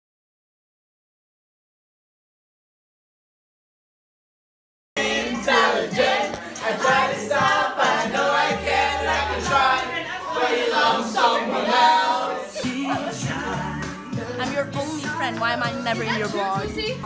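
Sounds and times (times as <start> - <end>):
small choir singing a cappella: 5.0 - 15.4.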